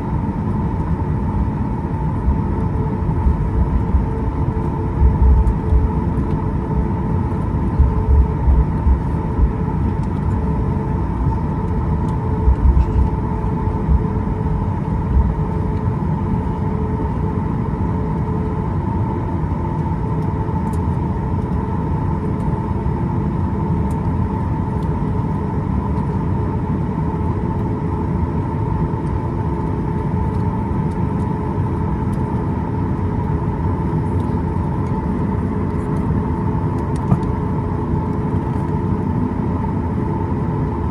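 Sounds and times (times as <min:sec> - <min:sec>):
airplane cabin engine hum: 0:00.0 - 0:40.9.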